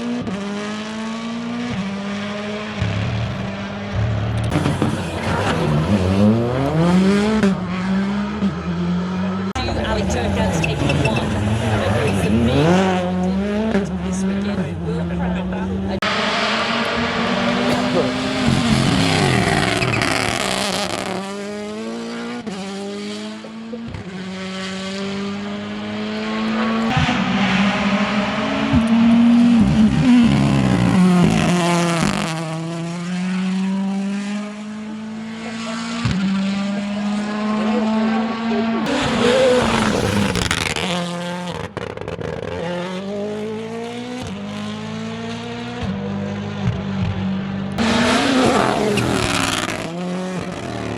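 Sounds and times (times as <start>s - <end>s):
rally car engine revving: 0.0s - 50.9s
tyre noise: 2.8s - 7.2s, 16.5s - 21.3s, 38.6s - 42.4s, 47.8s - 50.9s.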